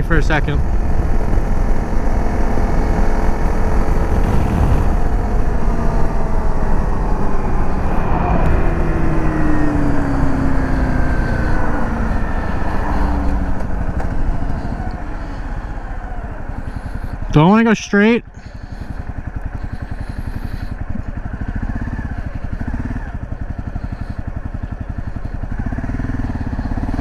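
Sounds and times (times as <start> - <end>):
dirt bike engine running: 0.0 - 27.0
wind noise: 0.6 - 17.4.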